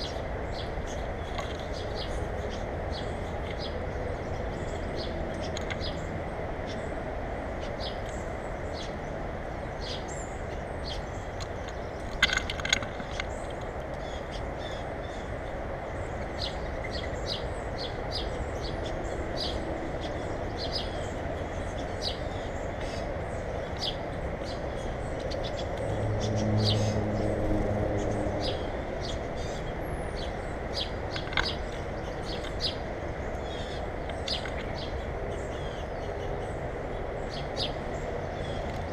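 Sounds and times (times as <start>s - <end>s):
birds chirping: 0.0s - 38.9s
low engine-like hum: 0.0s - 38.9s
steady background rumble: 0.0s - 38.9s.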